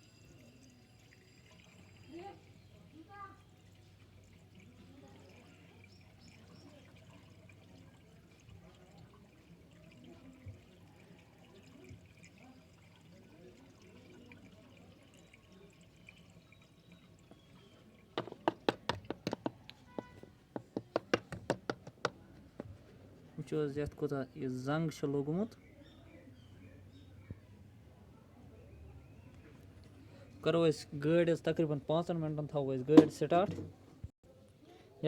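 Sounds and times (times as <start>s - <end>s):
liquid trickling into engine: 0.0s - 22.8s.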